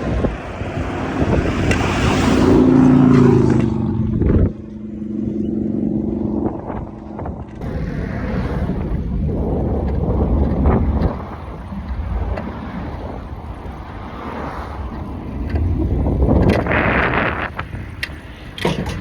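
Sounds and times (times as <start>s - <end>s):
vehicle engine running: 0.0s - 11.0s
rumbling traffic: 0.0s - 19.0s
wind noise: 0.0s - 19.0s.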